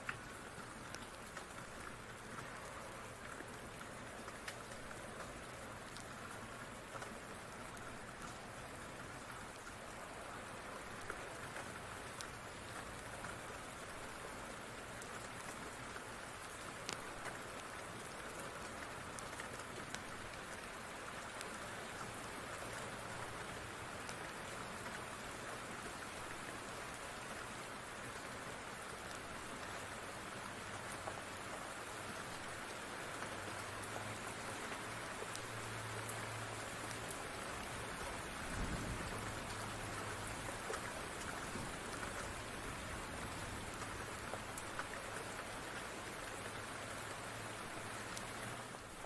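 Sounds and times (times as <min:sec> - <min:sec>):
steady rain falling: 0:00.0 - 0:49.0
small sharp ticks: 0:03.3 - 0:06.2, 0:16.8 - 0:20.2, 0:34.5 - 0:37.2.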